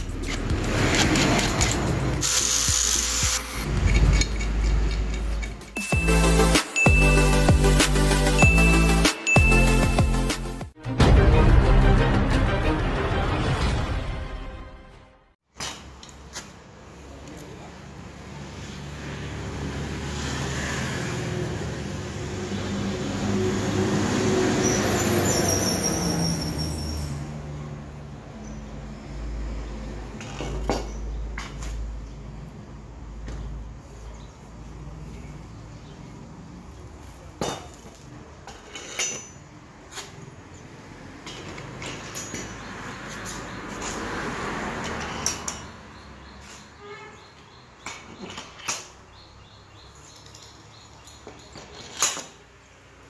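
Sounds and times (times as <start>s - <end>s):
metal tools clinking: 3.6s - 6.1s, 37.6s - 40.2s, 41.2s - 44.0s.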